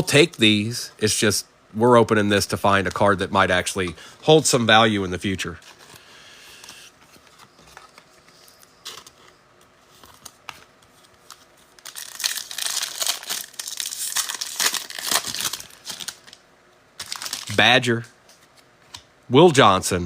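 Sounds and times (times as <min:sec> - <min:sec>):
plastic wrapper crinkling and tearing: 0:09.9 - 0:16.4, 0:17.0 - 0:17.7.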